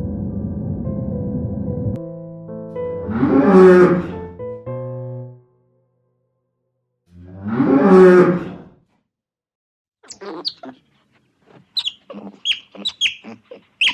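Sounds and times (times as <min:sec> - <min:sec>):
small animal squeaking: 0:10.0 - 0:10.9, 0:11.5 - 0:13.9
loud rough animal cry: 0:10.1 - 0:10.8, 0:11.7 - 0:13.9.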